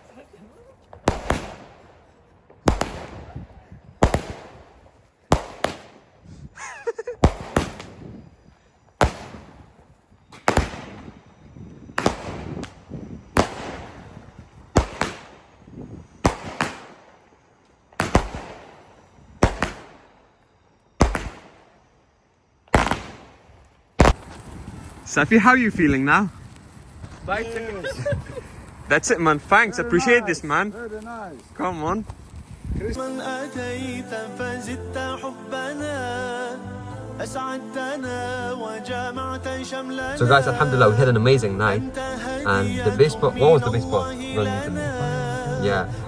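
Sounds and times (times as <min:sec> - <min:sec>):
firework bangs with echo: 0:01.0 - 0:01.9, 0:02.6 - 0:06.1, 0:07.2 - 0:08.2, 0:09.0 - 0:11.2, 0:12.0 - 0:17.2, 0:18.0 - 0:20.2, 0:21.0 - 0:21.7, 0:22.7 - 0:33.0.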